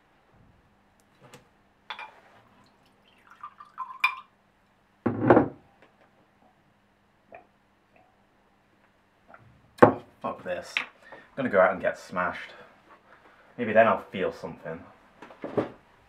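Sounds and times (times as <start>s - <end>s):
liquid pouring into glass: 2.6s - 4.3s.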